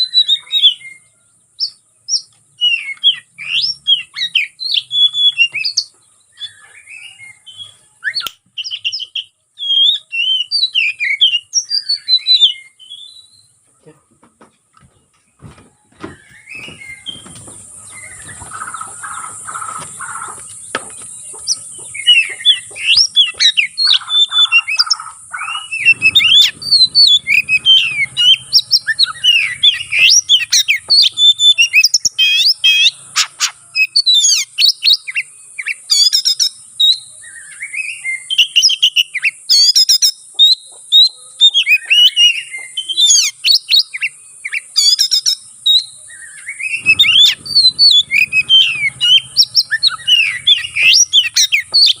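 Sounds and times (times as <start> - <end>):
bird singing rapid varied song: 0.0 - 14.0, 14.8 - 52.0.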